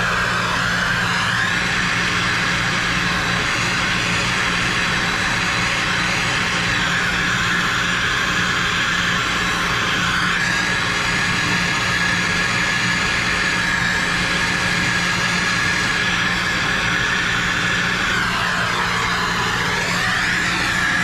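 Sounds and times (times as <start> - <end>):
soldering torch flame hissing: 0.0 - 21.0.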